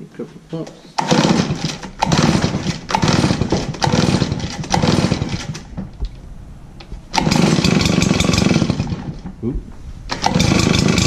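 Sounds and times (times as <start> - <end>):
recoil starter pulls: 0.7 - 6.2, 7.1 - 9.4, 10.1 - 11.0
two-stroke engine cranking: 1.0 - 5.9, 7.1 - 9.3, 10.1 - 11.0.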